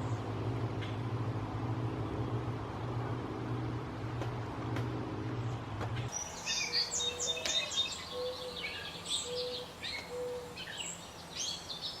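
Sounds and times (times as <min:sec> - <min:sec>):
small songbirds chirping: 0:05.4 - 0:12.0.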